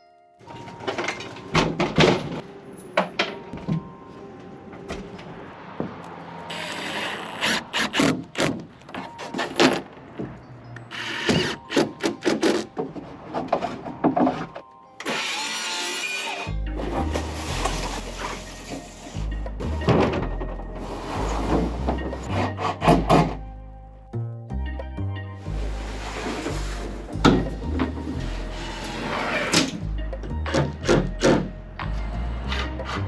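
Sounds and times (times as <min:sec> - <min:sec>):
power tool running: 0:06.5 - 0:08.2, 0:15.0 - 0:16.5.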